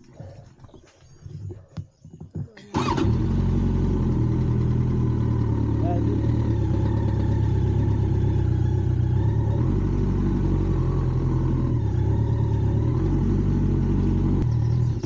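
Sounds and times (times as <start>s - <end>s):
motorcycle engine at low revs: 2.6s - 15.0s.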